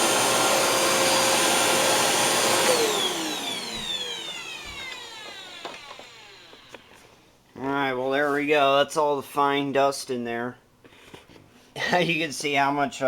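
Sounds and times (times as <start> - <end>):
vacuum cleaner motor whine: 0.0 - 7.1.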